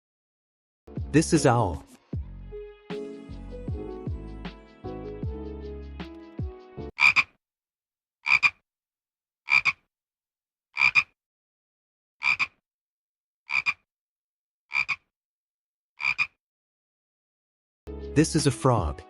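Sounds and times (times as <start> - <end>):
frog croaking: 7.0 - 7.4, 8.2 - 8.6, 9.5 - 9.9, 10.8 - 11.2, 12.2 - 12.6, 13.5 - 13.8, 14.7 - 15.1, 16.0 - 16.4.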